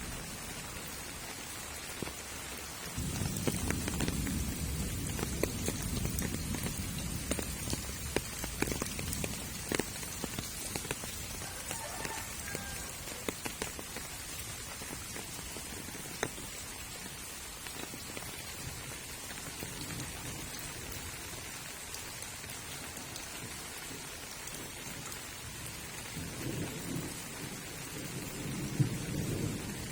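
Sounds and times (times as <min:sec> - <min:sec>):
light rain hiss: 0:00.0 - 0:29.9
water dripping: 0:03.0 - 0:18.3.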